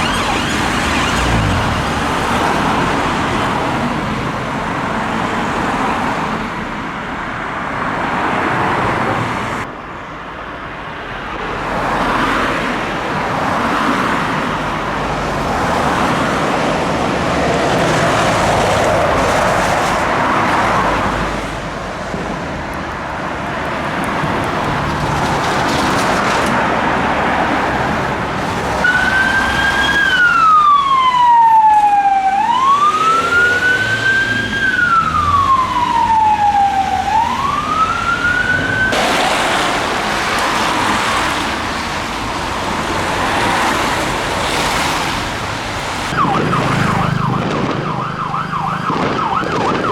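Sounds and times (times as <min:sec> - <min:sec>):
police siren wailing: 0:00.0 - 0:02.6, 0:28.8 - 0:41.3, 0:46.1 - 0:49.9
traffic noise: 0:00.0 - 0:49.9.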